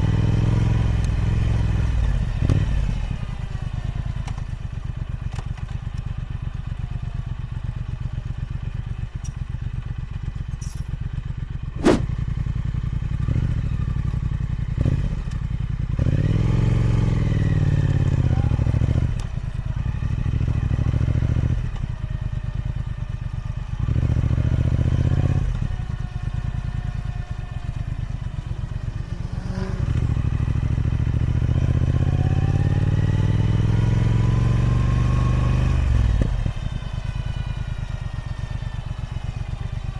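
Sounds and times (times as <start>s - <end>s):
sharp click: 11.8s - 12.1s
motorcycle engine accelerating: 11.8s - 12.4s, 14.7s - 39.9s.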